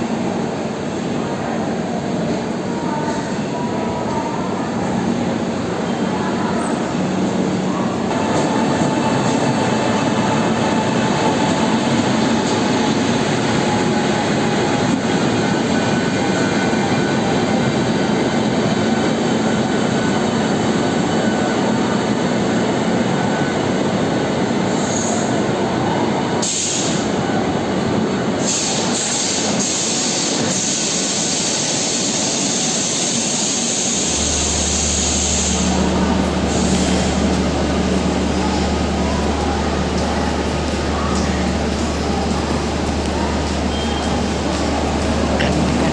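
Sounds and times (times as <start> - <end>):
train rumbling on rails: 0.0 - 45.9
low hum: 34.1 - 45.9.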